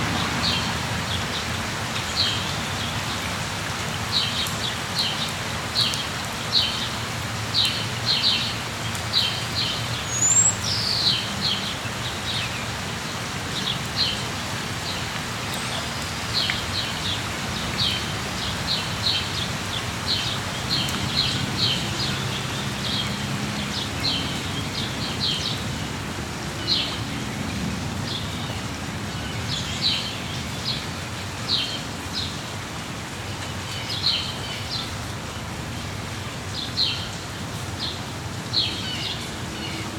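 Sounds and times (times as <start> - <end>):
rain hissing: 0.0 - 29.9
small birds chirping: 9.1 - 11.6.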